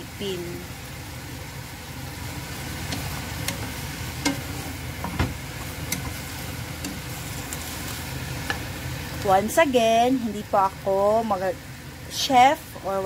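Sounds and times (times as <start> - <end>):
food sizzling in a frying pan: 0.0 - 13.0
wooden spatula stirring: 2.5 - 8.7.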